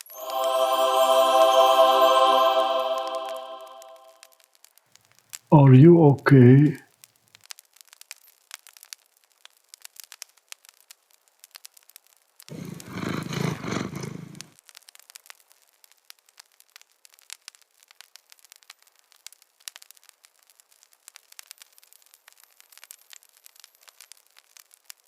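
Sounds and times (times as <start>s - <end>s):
rough animal growl: 12.5s - 14.5s.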